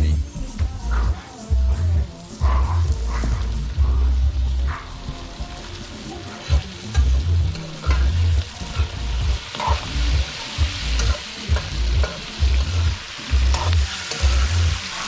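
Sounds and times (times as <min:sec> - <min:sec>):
food sizzling in a pan: 0:00.3 - 0:15.0
metal spoon scraping a pan: 0:06.0 - 0:15.0.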